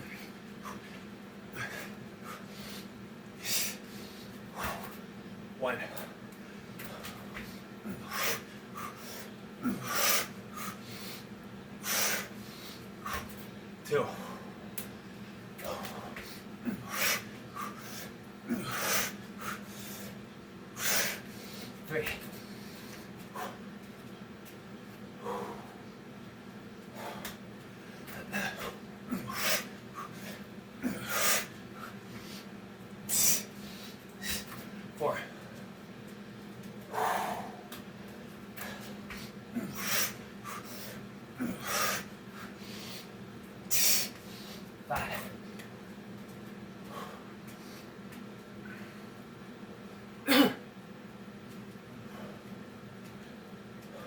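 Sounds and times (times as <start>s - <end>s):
man breathing hard: 0.0s - 5.0s, 6.0s - 23.7s, 25.1s - 25.9s, 26.8s - 34.9s, 36.8s - 37.8s, 38.5s - 45.3s, 46.8s - 48.0s.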